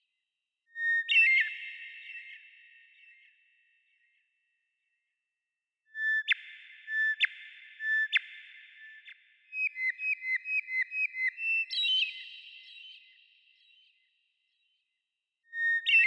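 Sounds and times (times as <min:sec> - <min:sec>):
songbird whistling and chirping: 0:00.7 - 0:03.3, 0:05.9 - 0:14.7, 0:15.5 - 0:16.0.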